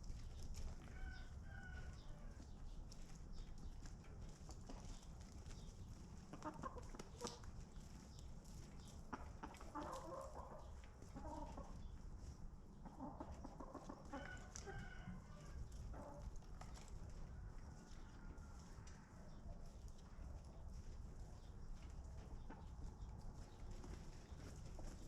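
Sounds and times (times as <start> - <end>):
low background noise: 0.0 - 25.0
chickens clucking: 0.5 - 25.0.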